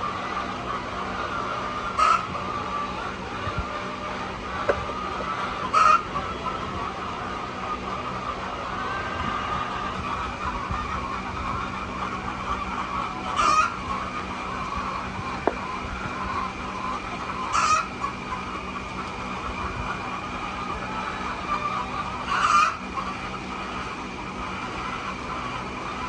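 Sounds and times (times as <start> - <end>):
hens clucking: 0.0 - 26.0
hen squawking: 14.7 - 18.2.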